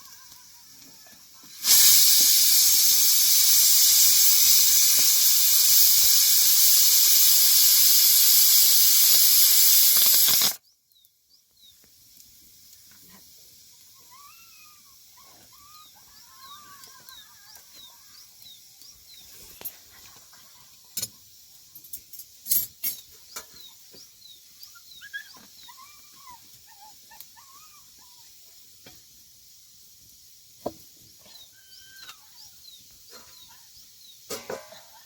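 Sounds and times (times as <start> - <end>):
steady high hiss: 0.0 - 35.0.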